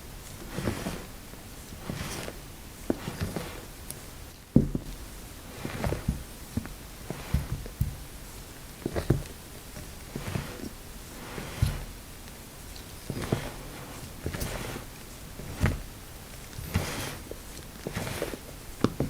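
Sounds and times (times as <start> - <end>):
spatula scraping batter in bowl: 0.4 - 3.8, 5.5 - 8.0, 8.8 - 12.0, 12.8 - 18.5.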